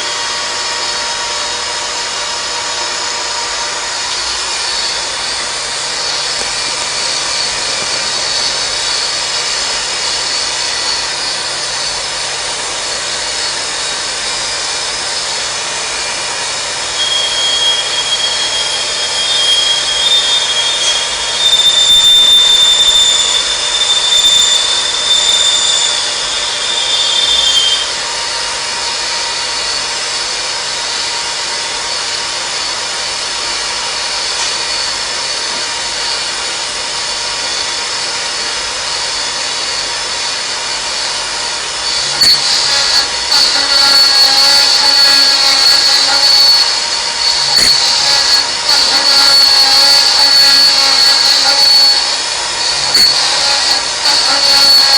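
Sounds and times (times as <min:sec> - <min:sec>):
machine high-pitched whine: 0:00.0 - 0:54.9
high ringing tone: 0:16.8 - 0:28.0, 0:41.8 - 0:54.9.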